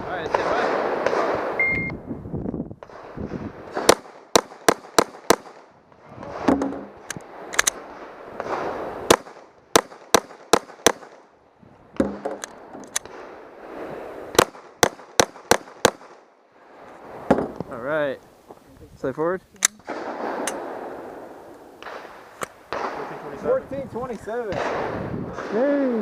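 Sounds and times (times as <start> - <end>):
pistol shots: 0.3 - 1.6, 3.7 - 5.7, 6.4 - 11.3, 14.3 - 16.2, 19.6 - 21.2, 21.8 - 23.3, 24.5 - 25.6.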